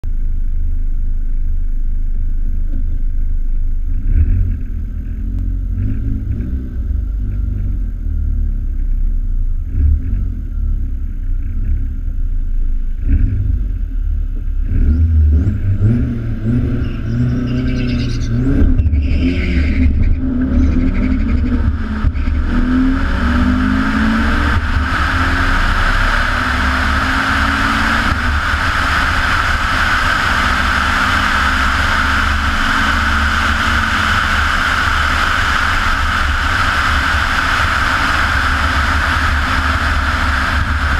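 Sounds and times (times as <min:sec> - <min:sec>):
turbocharged car engine: 0:00.0 - 0:40.9
rush of wind: 0:18.2 - 0:40.9.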